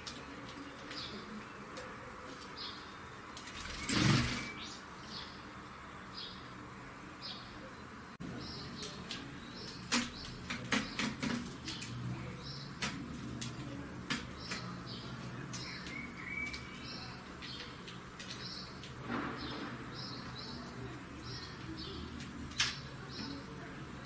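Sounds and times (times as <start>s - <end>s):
sharp clicks and taps: 8.8s - 12.0s, 12.7s - 16.7s
bird calling with high chirps: 14.4s - 18.8s.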